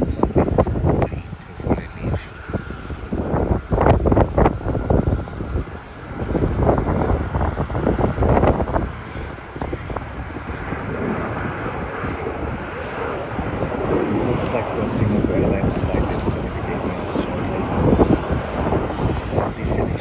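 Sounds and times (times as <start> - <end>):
distant jet engines: 0.0 - 20.0
wind buffeting microphone: 0.0 - 20.0.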